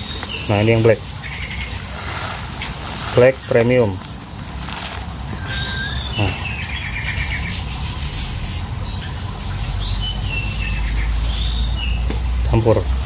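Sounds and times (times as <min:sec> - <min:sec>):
cage birds chirping and twittering: 0:00.0 - 0:13.0
high-pitched pulsing trill: 0:05.3 - 0:11.7.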